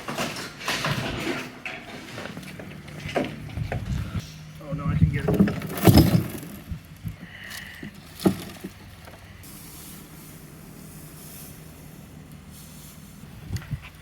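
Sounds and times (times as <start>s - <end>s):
vehicle engine idling: 2.4s - 14.0s
dull thuds: 5.0s - 7.2s.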